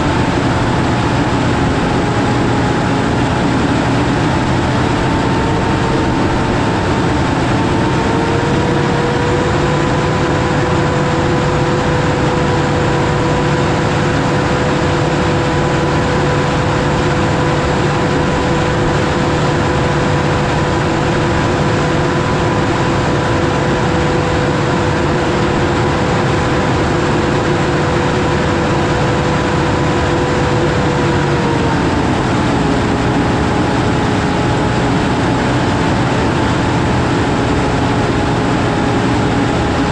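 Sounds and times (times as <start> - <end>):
heavy farm machinery running: 0.0 - 39.9
machinery whine: 0.0 - 39.9.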